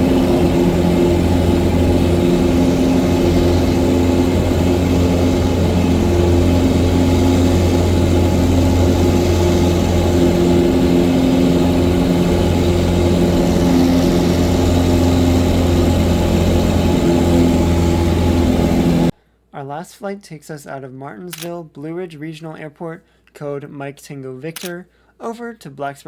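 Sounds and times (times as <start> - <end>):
propeller plane engine droning: 0.0 - 19.1.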